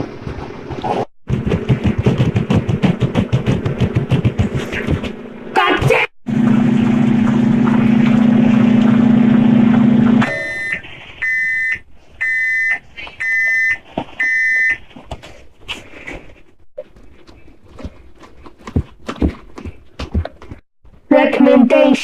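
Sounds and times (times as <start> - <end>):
microwave oven humming: 6.3 - 11.7
high beeps: 10.2 - 14.8.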